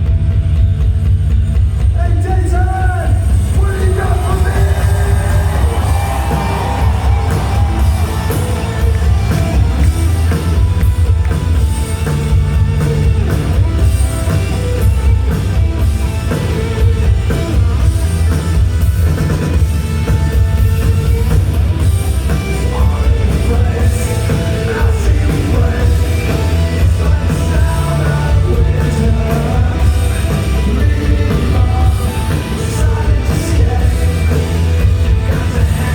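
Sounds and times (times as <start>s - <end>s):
bass: 0.0s - 35.9s
drums: 0.0s - 35.9s
electric guitars: 2.6s - 35.9s.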